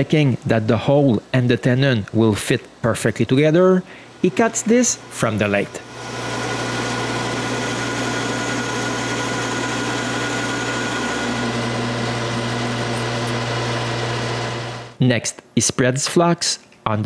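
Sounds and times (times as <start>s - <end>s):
metal lathe motor hum: 5.0s - 15.0s.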